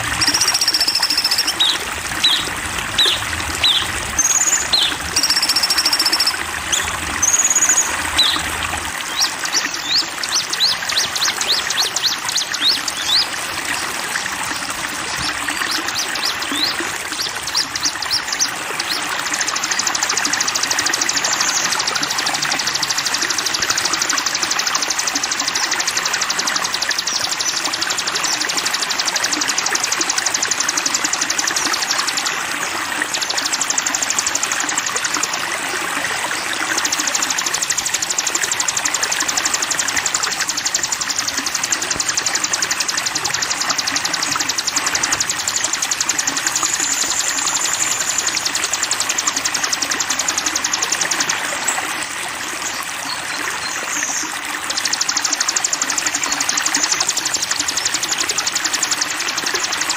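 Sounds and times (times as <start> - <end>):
running water: 0.0 - 59.9
songbird high-pitched trill: 0.1 - 13.3, 33.0 - 35.3, 36.6 - 51.7.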